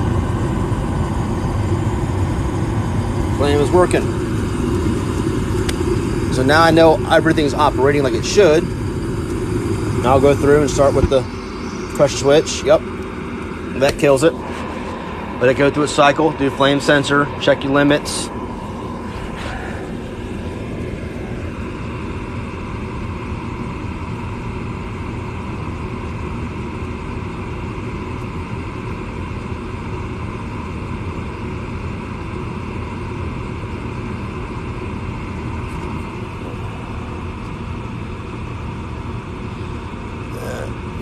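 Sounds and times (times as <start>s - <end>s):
low hum: 0.0s - 25.0s
furnace fan whirring: 0.0s - 41.0s.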